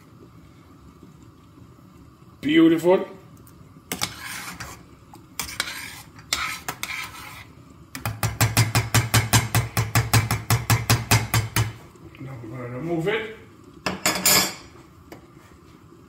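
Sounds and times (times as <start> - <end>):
spoon stirring and scraping pot: 3.8 - 11.8.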